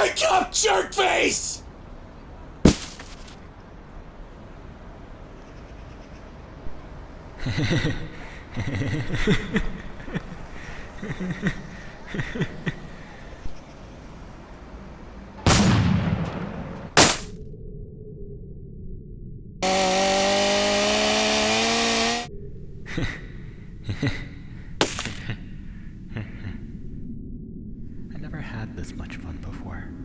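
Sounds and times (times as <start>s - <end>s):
fight sound effects: 0.0s - 1.6s.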